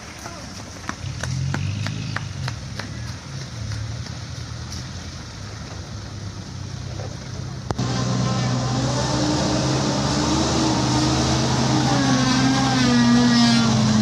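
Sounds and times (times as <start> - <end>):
diesel truck engine running: 5.2 - 14.0.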